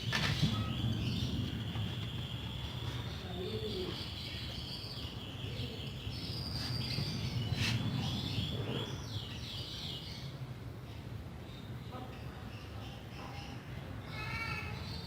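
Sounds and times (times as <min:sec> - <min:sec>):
steady low rumble: 0:00.0 - 0:11.4
small birds chirping: 0:00.0 - 0:15.0.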